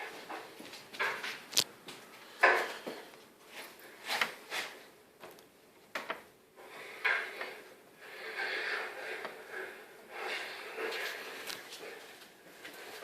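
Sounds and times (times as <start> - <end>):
rough sliding noise: 6.6 - 13.0.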